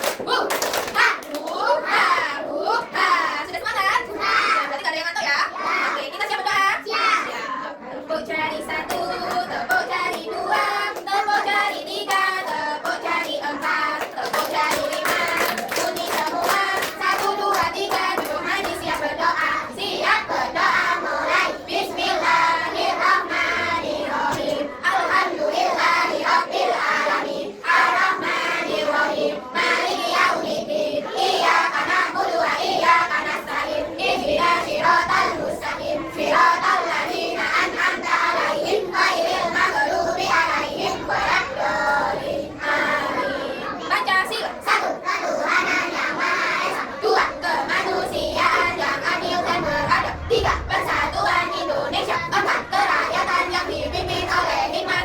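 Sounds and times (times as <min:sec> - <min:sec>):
children clapping hands: 0:00.0 - 0:01.8, 0:08.8 - 0:19.1
children singing: 0:00.0 - 0:04.7, 0:05.4 - 0:55.0.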